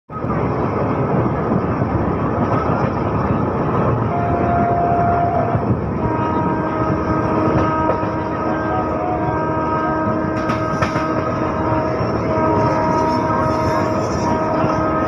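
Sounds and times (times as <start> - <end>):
train wheels rumbling on rails: 0.1 - 15.0.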